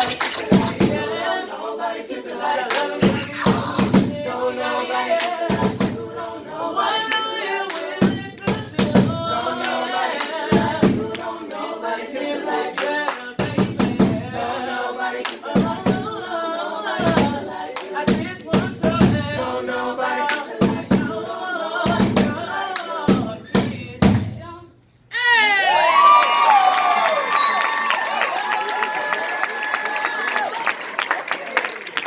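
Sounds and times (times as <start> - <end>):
sharp percussive hits: 0.0 - 1.1
voices singing a cappella: 0.0 - 24.8.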